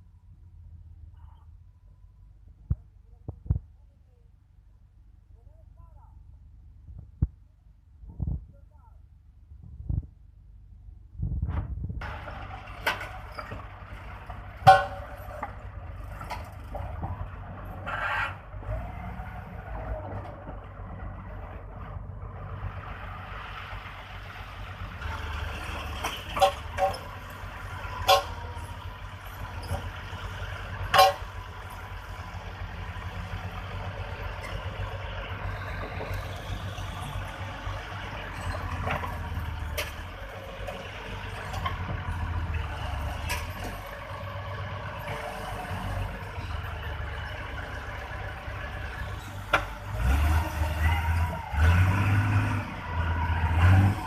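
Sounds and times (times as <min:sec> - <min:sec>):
bulldozer diesel engine running: 0:11.9 - 0:54.0
sharp metallic clanks: 0:14.6 - 0:15.6.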